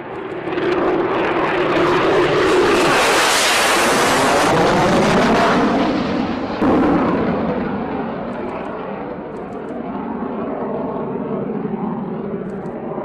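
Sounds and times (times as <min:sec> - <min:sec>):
jet fighter engine roar: 0:00.0 - 0:13.0.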